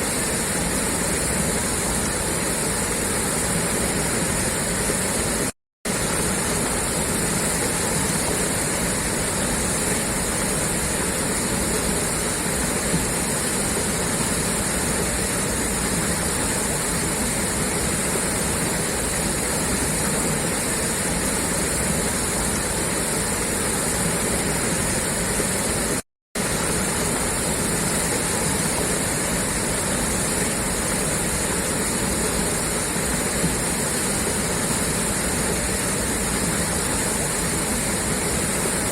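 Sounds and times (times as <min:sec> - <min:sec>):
water gushing from a pipe: 0:00.0 - 0:38.9.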